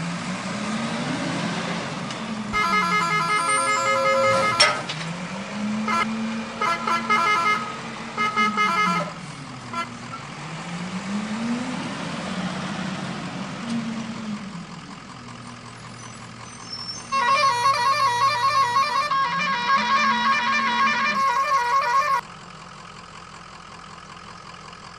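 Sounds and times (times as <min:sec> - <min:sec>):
truck engine revving: 0:00.0 - 0:22.2
vehicle horn bursts: 0:02.5 - 0:05.0, 0:05.8 - 0:10.1, 0:17.1 - 0:22.2.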